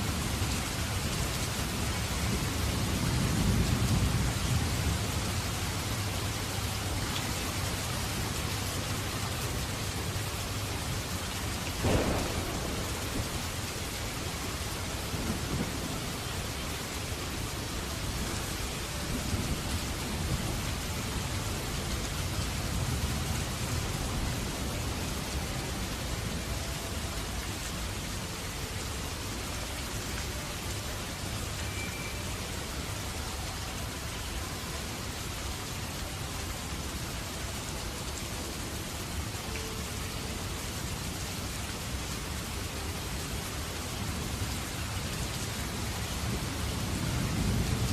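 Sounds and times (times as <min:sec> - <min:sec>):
steady rain falling: 0:00.0 - 0:47.9
low thunder rumble: 0:11.7 - 0:25.8.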